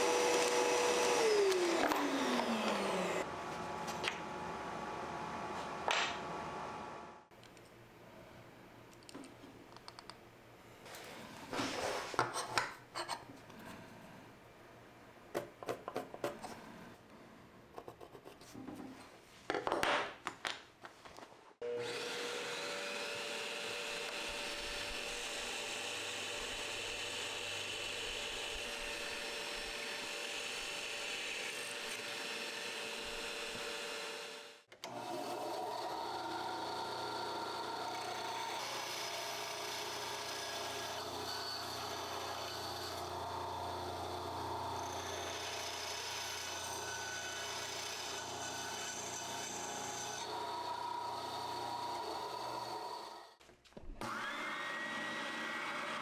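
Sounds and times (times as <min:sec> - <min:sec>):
power tool whining: 0:00.0 - 0:03.3, 0:54.0 - 0:56.0.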